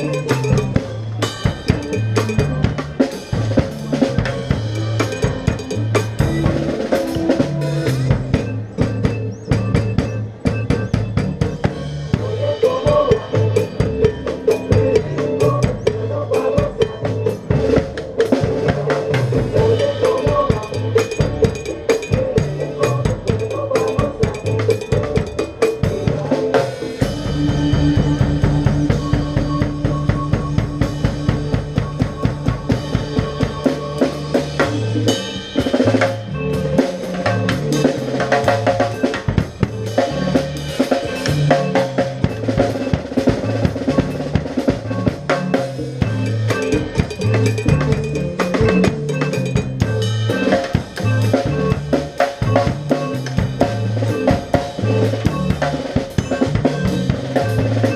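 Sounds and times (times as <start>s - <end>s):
bass line: 0.0s - 57.9s
fast drum kit rhythm: 0.0s - 57.9s.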